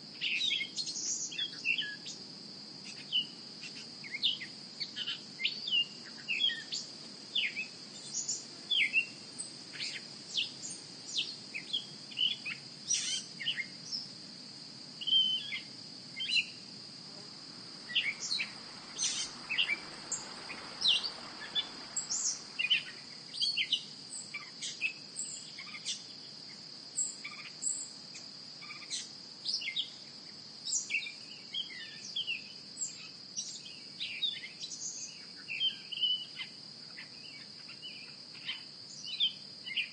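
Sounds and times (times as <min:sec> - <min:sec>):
small birds chirping: 0:00.2 - 0:14.2, 0:14.9 - 0:16.9, 0:17.6 - 0:39.9
high-pitched insect drone: 0:15.0 - 0:30.1.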